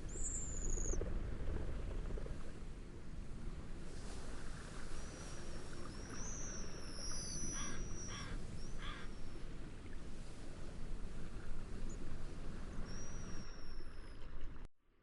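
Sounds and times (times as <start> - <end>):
gentle waves: 0.0 - 14.7
short bird calls: 7.5 - 9.1.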